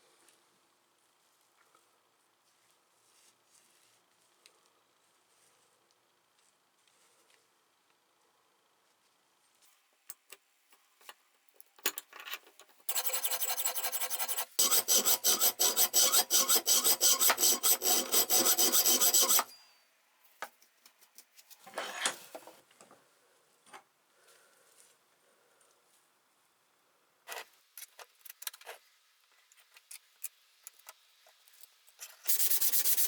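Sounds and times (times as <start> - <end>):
file rasping steel: 12.9 - 19.6.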